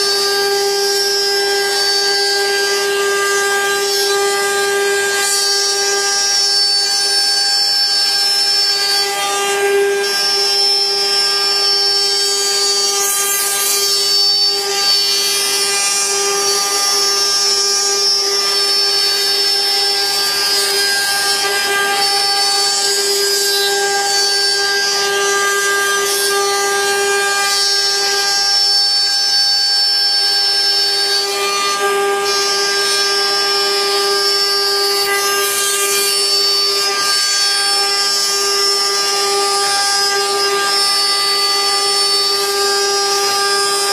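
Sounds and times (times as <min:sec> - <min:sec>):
bit cutting wood: 0:00.0 - 0:43.9
router spindle whine: 0:00.0 - 0:43.9.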